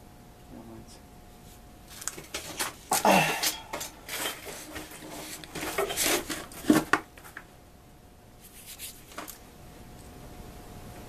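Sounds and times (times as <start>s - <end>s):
rustling and scraping: 1.4s - 7.5s.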